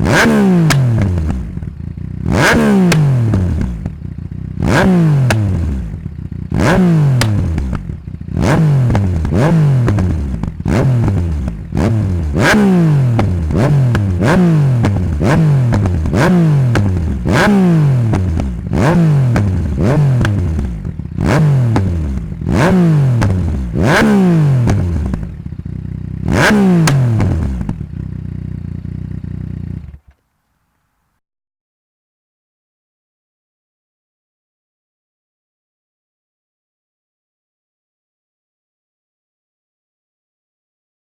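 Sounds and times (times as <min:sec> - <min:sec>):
motorcycle engine revving: 0:00.0 - 0:30.2
exhaust pops and crackles: 0:00.6 - 0:01.8, 0:02.4 - 0:04.0, 0:05.2 - 0:08.0, 0:13.2 - 0:17.4, 0:18.0 - 0:23.8, 0:24.6 - 0:25.4, 0:26.4 - 0:27.9.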